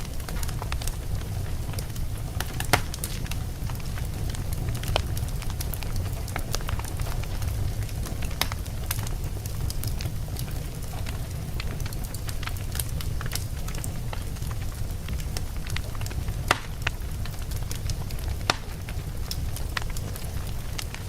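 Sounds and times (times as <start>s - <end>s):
crackles and pops of fire: 0.0s - 21.0s
fire rumbling in a fireplace: 0.0s - 21.0s.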